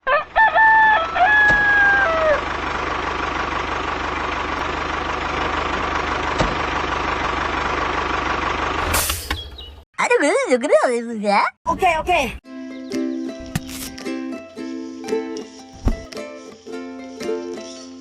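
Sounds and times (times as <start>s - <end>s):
rooster crowing: 0.0s - 2.5s.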